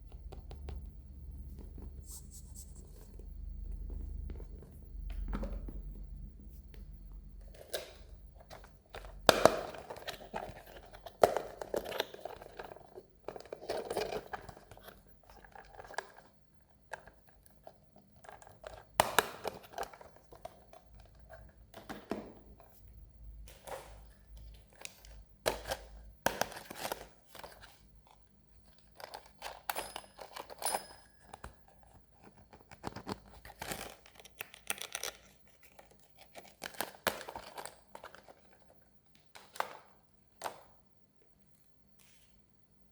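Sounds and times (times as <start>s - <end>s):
packaging crinkling and tearing: 32.2s - 38.8s.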